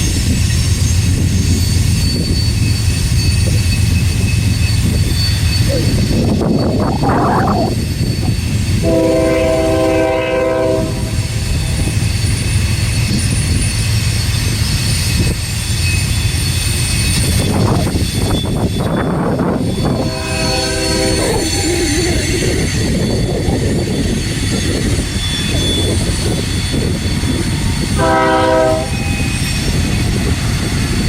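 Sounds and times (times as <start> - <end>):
train rumbling by: 0.0 - 31.0
locomotive horn: 8.8 - 11.4, 19.7 - 21.6, 28.0 - 29.1.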